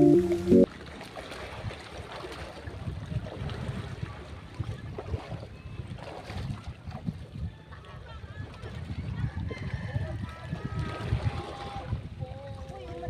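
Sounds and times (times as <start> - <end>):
wind buffeting microphone: 2.7 - 13.0.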